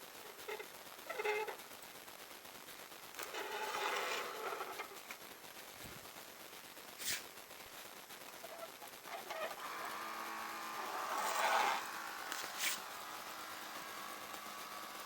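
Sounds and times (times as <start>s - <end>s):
small electric motor whirring: 9.1s - 15.0s.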